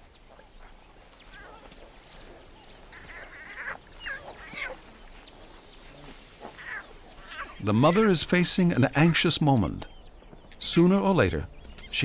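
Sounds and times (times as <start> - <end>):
lion cubs squealing and mewing: 0.6 - 7.6.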